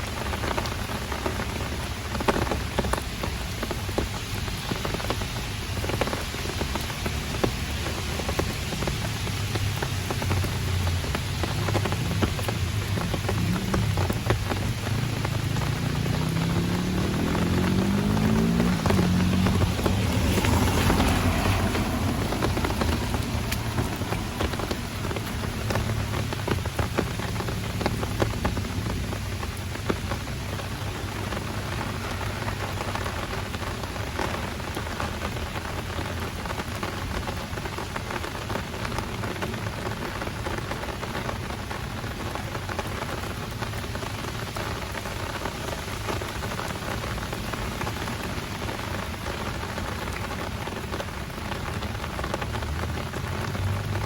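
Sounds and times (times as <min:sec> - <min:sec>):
heavy rain falling: 0:00.0 - 0:54.0
raindrops ticking: 0:00.0 - 0:54.0.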